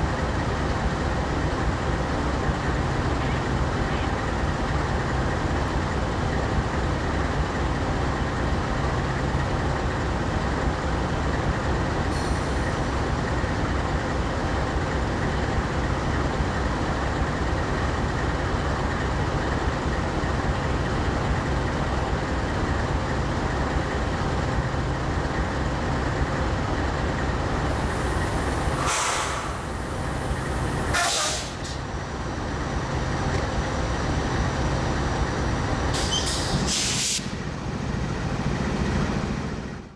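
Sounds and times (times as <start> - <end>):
train rumbling past: 0.0 - 39.9
short hisses: 27.7 - 31.8, 36.0 - 37.4.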